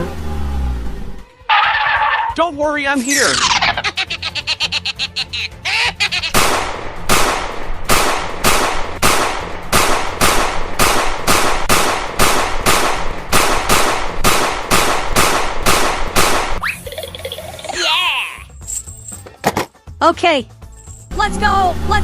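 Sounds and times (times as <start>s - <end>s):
sharp noisy bangs: 6.3s - 16.6s.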